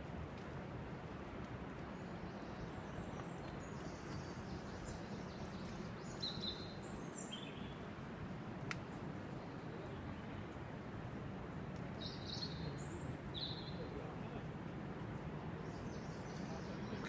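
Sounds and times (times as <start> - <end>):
steady background hiss: 0.0 - 17.0
small birds chirping and trilling: 1.9 - 7.8, 12.0 - 14.1, 15.6 - 17.0.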